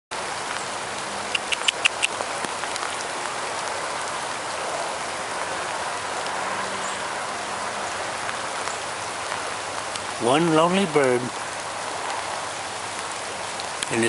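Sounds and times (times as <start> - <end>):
heavy rain pouring: 0.1 - 14.0
sharp ticks: 1.3 - 2.8.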